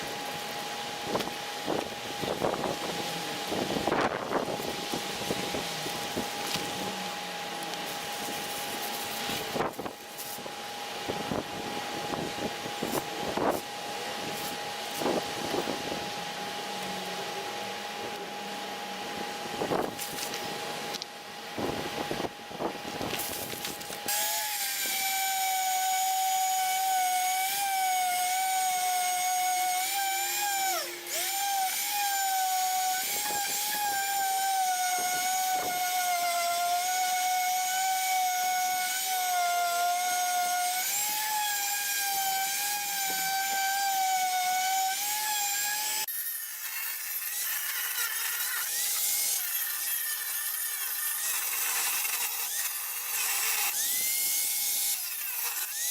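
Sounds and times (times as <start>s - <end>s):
power sander whining: 22.9s - 55.9s.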